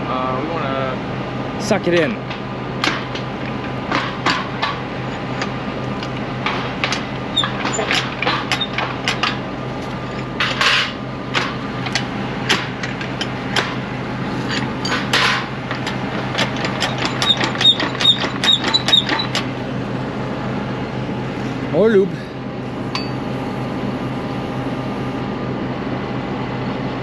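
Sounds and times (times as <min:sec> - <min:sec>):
low hum: 0:00.0 - 0:27.0
ringing metallic taps: 0:22.9 - 0:23.2.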